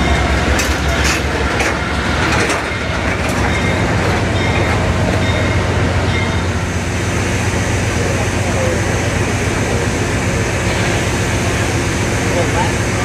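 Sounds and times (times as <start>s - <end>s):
diesel locomotive engines running: 0.0s - 13.0s
train wheel clicks over rail joints: 0.1s - 5.3s.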